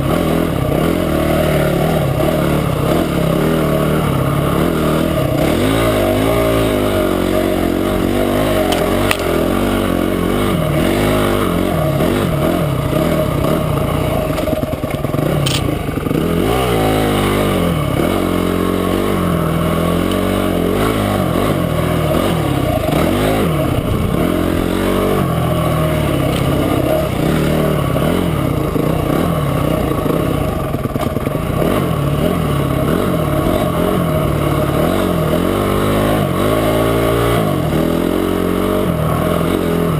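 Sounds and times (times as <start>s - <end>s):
motorcycle engine revving: 0.0s - 39.9s
sharp clicks: 15.4s - 15.8s.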